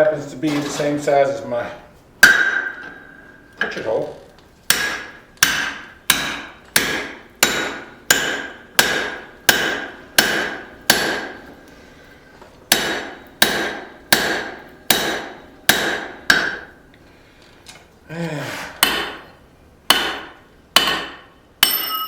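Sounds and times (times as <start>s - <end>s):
hammer striking punch on anvil: 2.2s - 3.2s, 4.7s - 11.4s, 12.7s - 16.7s, 18.8s - 19.2s, 19.9s - 22.0s.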